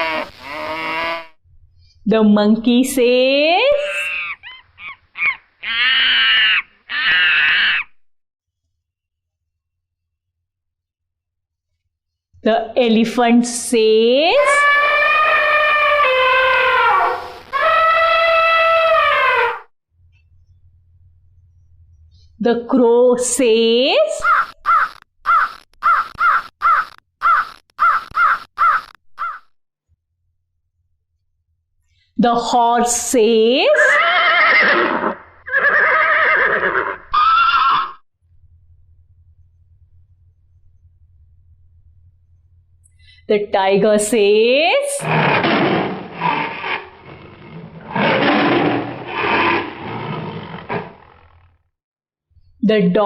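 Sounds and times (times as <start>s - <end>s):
crow cawing: 4.0s - 8.0s, 24.2s - 29.4s
tiger roaring and growling: 45.0s - 51.5s.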